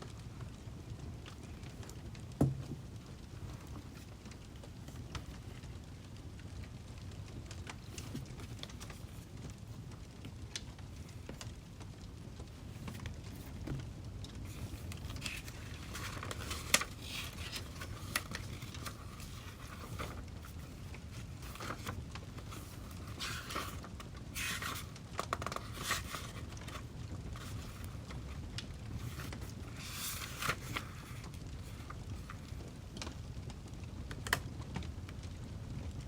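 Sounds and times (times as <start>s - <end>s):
wood fire crackling: 0.0s - 36.0s
scraping and rustling: 12.4s - 32.6s.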